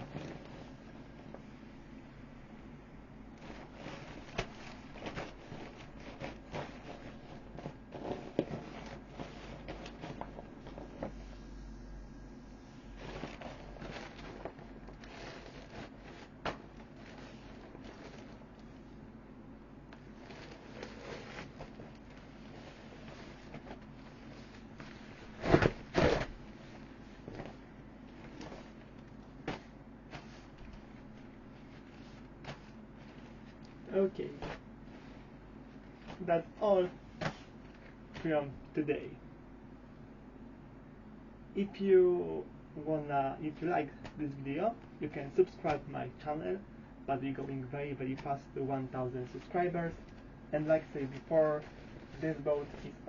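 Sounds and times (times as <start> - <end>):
vinyl of inflatable boat rustling: 0.0 - 0.9, 3.4 - 11.5, 12.8 - 19.0, 20.0 - 38.5, 48.1 - 53.0
loud rasping crumples: 12.9 - 18.5.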